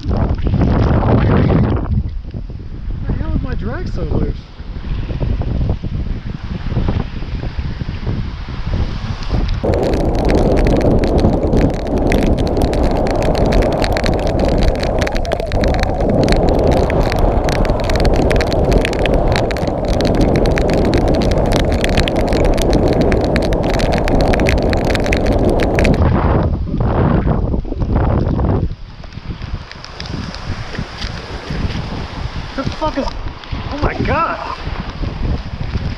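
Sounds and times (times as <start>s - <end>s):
wind buffeting microphone: 0.0s - 35.9s
heavy rain: 9.3s - 26.3s, 27.9s - 35.9s.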